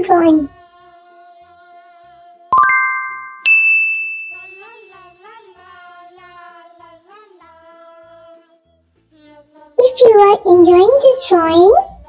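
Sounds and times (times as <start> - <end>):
bright chime dings: 2.6 - 5.2.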